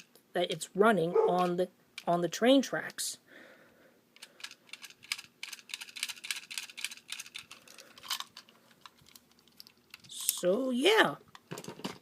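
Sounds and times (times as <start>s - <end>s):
toy train clicking on plastic track: 4.2s - 8.3s.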